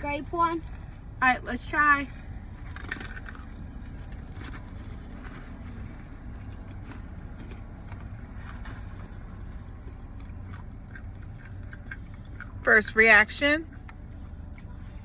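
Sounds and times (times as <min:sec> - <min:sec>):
steady low rumble: 0:00.0 - 0:15.0
crunchy candy being chewed: 0:02.6 - 0:12.6.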